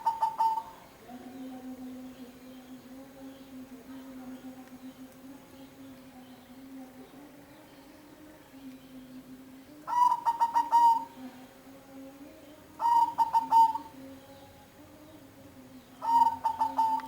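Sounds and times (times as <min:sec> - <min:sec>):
dove cooing: 0:00.0 - 0:01.4, 0:09.8 - 0:11.4, 0:12.7 - 0:14.3, 0:16.0 - 0:17.0.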